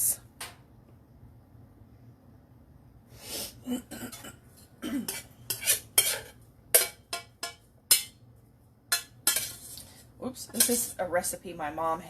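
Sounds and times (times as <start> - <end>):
spoon scraping and knocking dishes: 4.1 - 8.2, 8.9 - 11.0.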